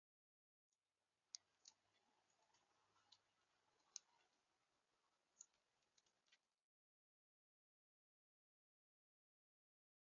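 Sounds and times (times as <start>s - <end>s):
quiet hiss: 1.1s - 6.6s.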